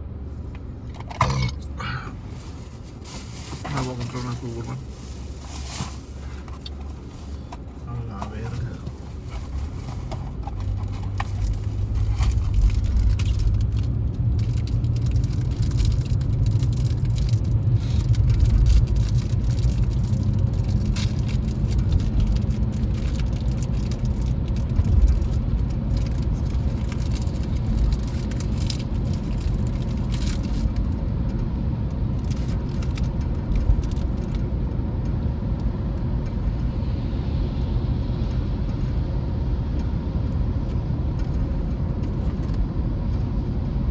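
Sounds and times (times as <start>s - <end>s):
car engine and road rumble: 0.0s - 43.9s
light clicks and rattles: 7.5s - 36.7s.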